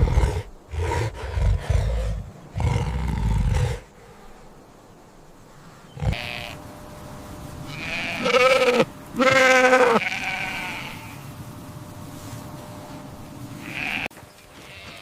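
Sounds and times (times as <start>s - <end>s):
sheep bleating: 6.0s - 6.6s, 7.7s - 11.3s, 13.6s - 15.0s.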